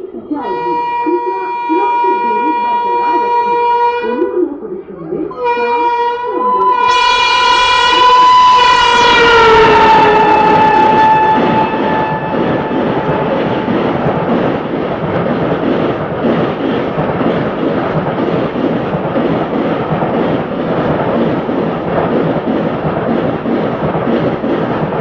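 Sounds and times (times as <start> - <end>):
train wheels on rails: 6.5 - 25.0.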